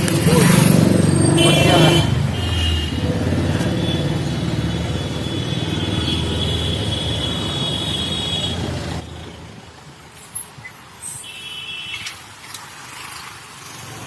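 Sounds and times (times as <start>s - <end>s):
motor vehicle rumble: 0.0s - 11.2s
road traffic: 0.0s - 14.0s.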